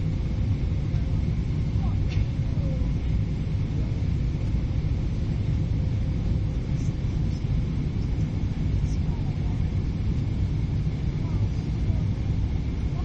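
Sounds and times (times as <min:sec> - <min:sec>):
airliner cabin rumble: 0:00.0 - 0:13.0.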